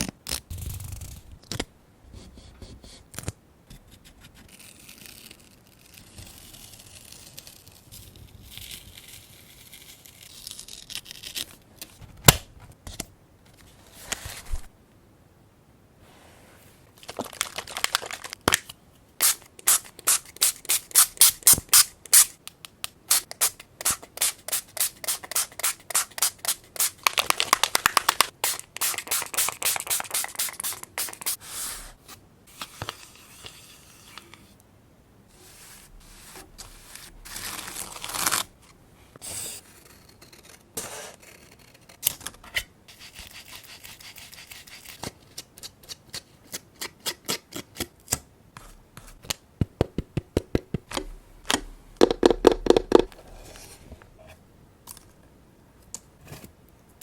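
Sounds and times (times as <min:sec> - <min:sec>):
paper rustling: 0:17.0 - 0:18.7.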